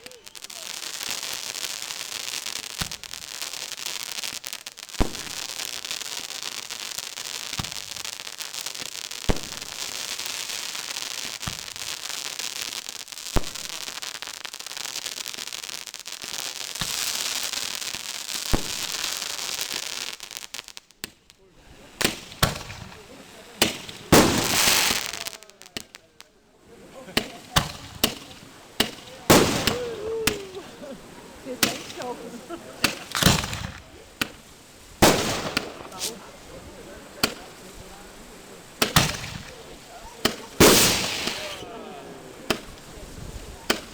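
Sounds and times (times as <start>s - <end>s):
fireworks bangs: 0.0s - 43.9s
fireworks crackling: 0.0s - 43.9s.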